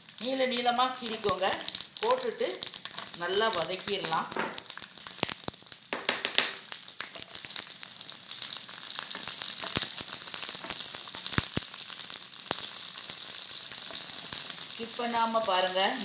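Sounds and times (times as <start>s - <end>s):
chillies sizzling in hot oil: 0.0s - 16.0s
sharp oil pops: 4.3s - 6.7s.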